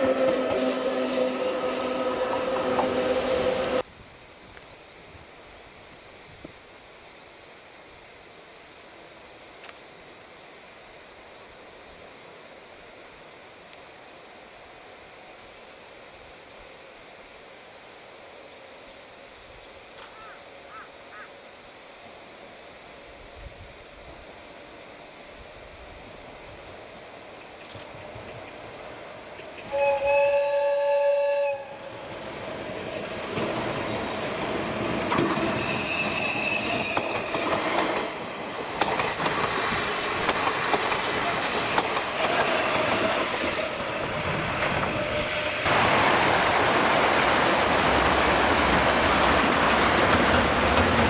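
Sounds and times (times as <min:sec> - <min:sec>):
train wheels squealing: 0:00.0 - 0:04.8, 0:29.4 - 0:37.8, 0:41.5 - 0:45.7.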